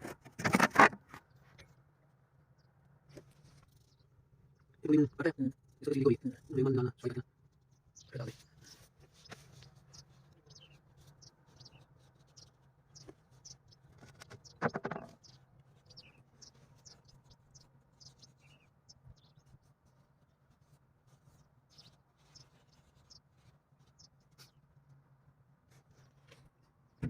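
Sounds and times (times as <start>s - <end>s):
faint scratching of hand work: 5.6s - 25.0s, 25.6s - 26.9s.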